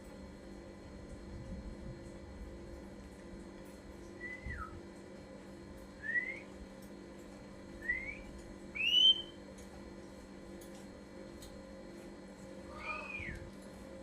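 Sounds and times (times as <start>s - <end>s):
bird whistling clear notes: 8.8s - 9.3s.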